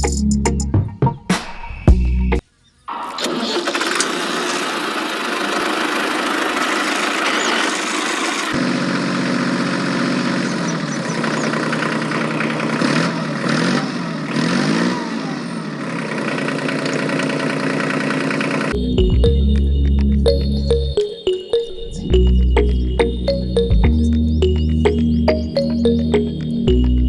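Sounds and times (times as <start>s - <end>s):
small motor droning: 3.3s - 18.7s.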